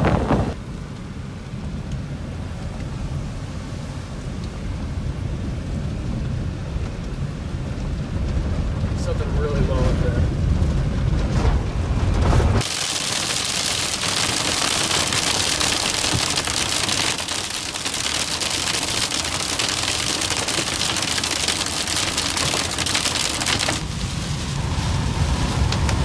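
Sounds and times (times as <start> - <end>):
heavy rain on car roof: 5.5 - 26.0
low rumble: 23.8 - 26.0.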